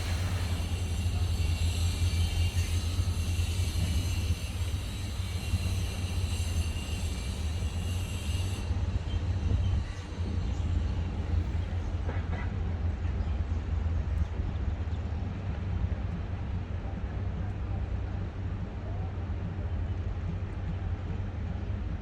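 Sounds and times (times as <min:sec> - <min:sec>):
fountain water hissing: 0:00.0 - 0:00.8
distant construction: 0:00.0 - 0:13.6.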